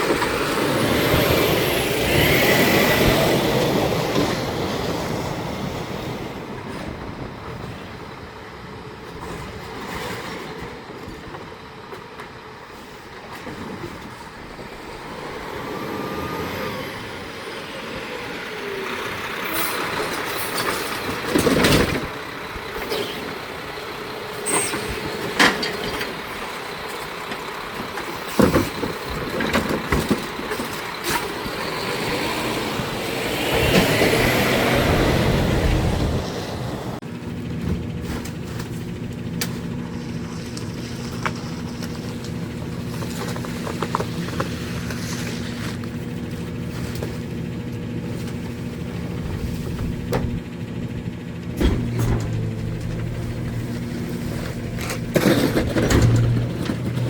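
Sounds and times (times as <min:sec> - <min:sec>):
garbage truck diesel engine: 0:00.0 - 0:57.0
knocks and clanks: 0:51.5 - 0:57.0.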